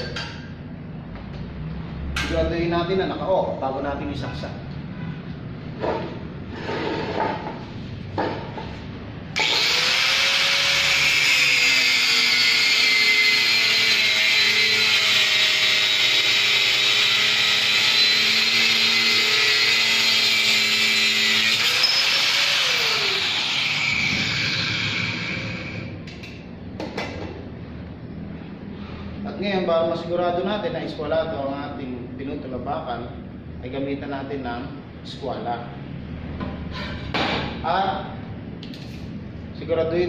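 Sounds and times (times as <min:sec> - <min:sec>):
angle grinder cutting steel: 0:09.4 - 0:25.9.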